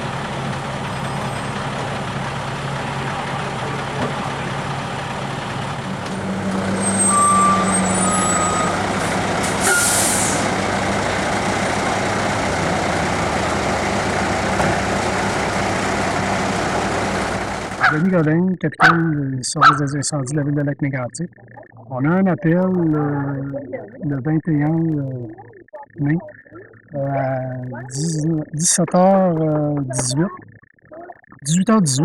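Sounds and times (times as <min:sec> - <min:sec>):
fire truck engine idling: 0:00.0 - 0:19.0
air brake hiss: 0:09.5 - 0:10.5.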